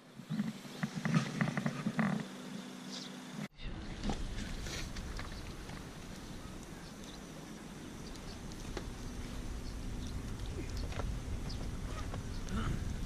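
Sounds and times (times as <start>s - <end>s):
low rumble: 3.6s - 13.0s
wind buffeting microphone: 3.6s - 13.0s
faint chirps and ticks: 4.9s - 13.0s.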